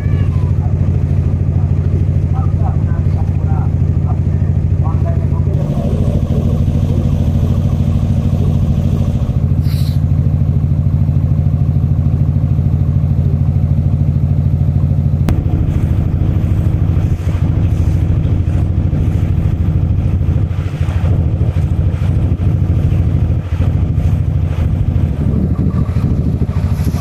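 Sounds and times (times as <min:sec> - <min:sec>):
boat engine throbbing: 0:00.0 - 0:27.0.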